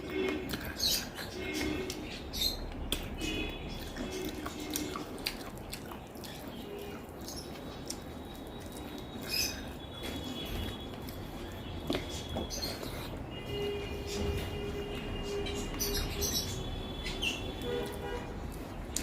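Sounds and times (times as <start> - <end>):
person chewing food: 0.0 - 15.2, 17.4 - 19.0.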